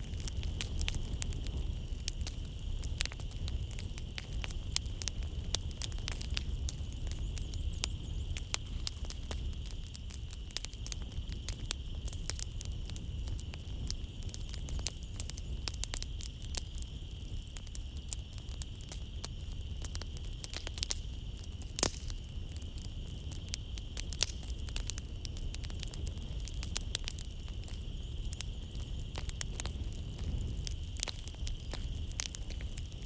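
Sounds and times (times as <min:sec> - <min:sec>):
night insects trilling: 0:00.0 - 0:33.0
wood fire crackling and popping: 0:00.0 - 0:33.0.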